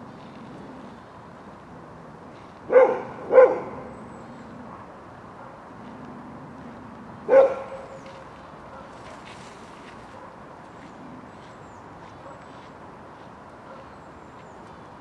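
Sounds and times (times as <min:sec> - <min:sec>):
dog barking: 0:02.7 - 0:03.9, 0:04.7 - 0:05.7, 0:07.3 - 0:08.0, 0:08.6 - 0:09.0, 0:12.2 - 0:12.5, 0:13.6 - 0:14.0.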